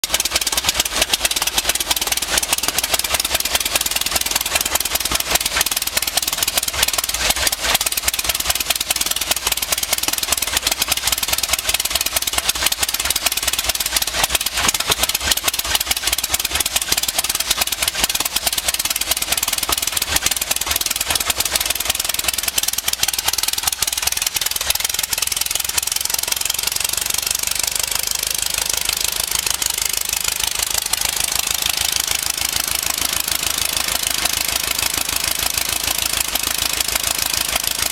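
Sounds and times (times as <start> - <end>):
diesel engine running with knocking beat: 0.0 - 37.9.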